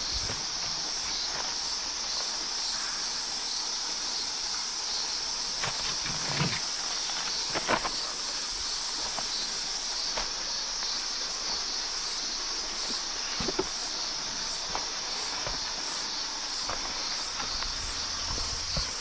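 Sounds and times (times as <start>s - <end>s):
steady high-pitched hiss: 0.0s - 19.0s
footsteps crunching on dry ground: 12.8s - 19.0s.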